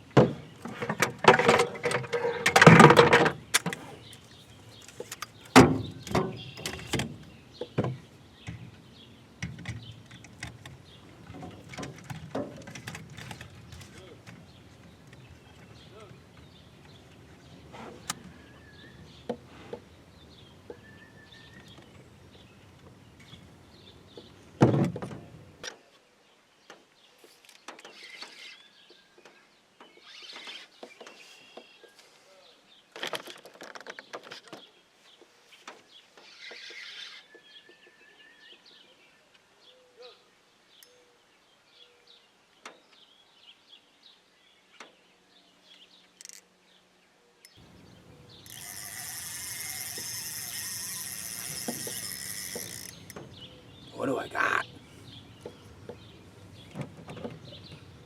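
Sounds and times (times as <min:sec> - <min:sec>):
birds chirping: 0:00.0 - 0:24.7, 0:38.5 - 0:58.0.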